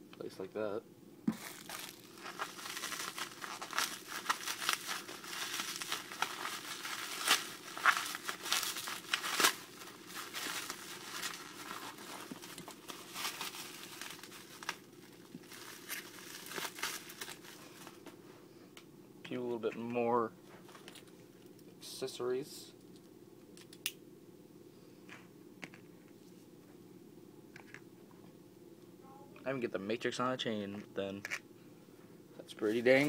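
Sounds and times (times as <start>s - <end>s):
packaging crinkling and tearing: 1.4s - 17.9s.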